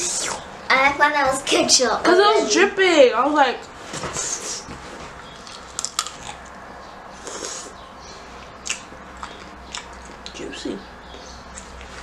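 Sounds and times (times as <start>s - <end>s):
wet chewing: 5.3s - 6.6s, 8.4s - 10.5s
pickle crunching: 5.4s - 6.6s, 8.6s - 10.4s.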